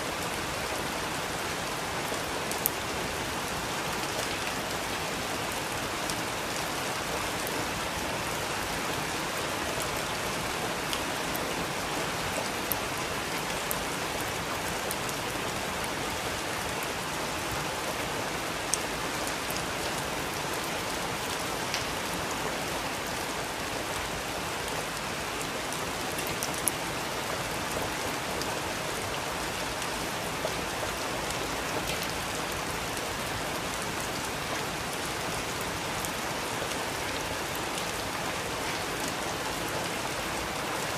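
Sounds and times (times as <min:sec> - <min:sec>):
raindrops hitting a surface: 0:00.0 - 0:40.9
steady rain hiss: 0:00.0 - 0:40.9.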